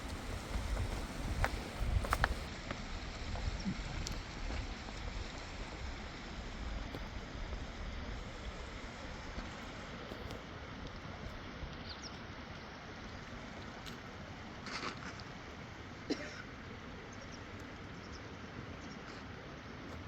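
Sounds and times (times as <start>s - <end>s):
fast-flowing river rushing: 0.0s - 2.5s.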